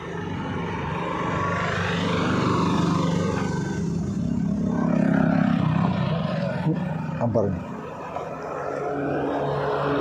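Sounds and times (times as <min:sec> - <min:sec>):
vehicle engine droning: 0:00.0 - 0:10.0.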